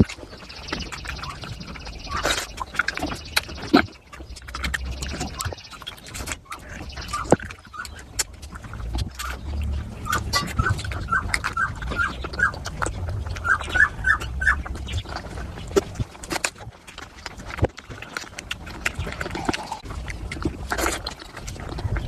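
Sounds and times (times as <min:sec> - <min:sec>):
squeaky smacks: 0:00.0 - 0:16.6
wet chewing and lip-smacking: 0:00.0 - 0:22.0.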